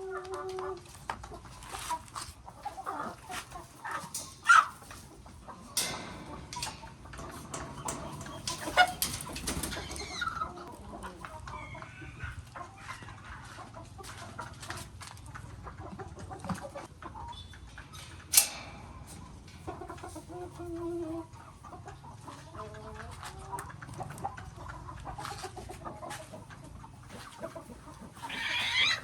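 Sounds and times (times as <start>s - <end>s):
chickens clucking: 0.0s - 29.0s
small clicks and knocks: 5.7s - 10.0s.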